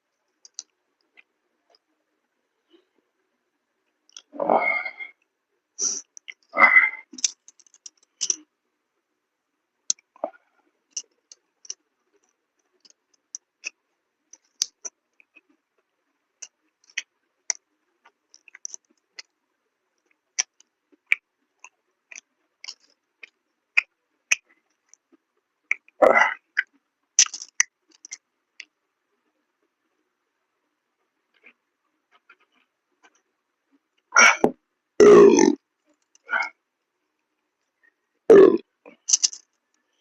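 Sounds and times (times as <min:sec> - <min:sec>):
mouth chewing clicks and smacks: 0:07.1 - 0:08.5, 0:10.9 - 0:19.4, 0:20.0 - 0:28.8, 0:38.3 - 0:39.6.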